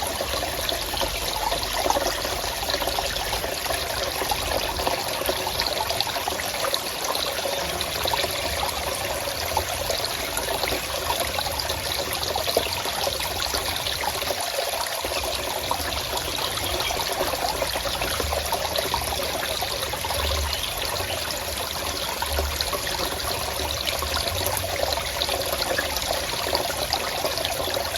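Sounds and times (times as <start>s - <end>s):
stream trickling over stones: 0.0s - 27.9s.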